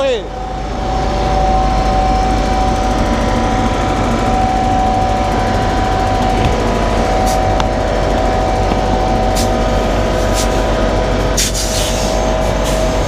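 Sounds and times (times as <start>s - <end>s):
diesel truck engine whining: 0.0s - 13.0s
air brake hisses: 11.4s - 13.0s.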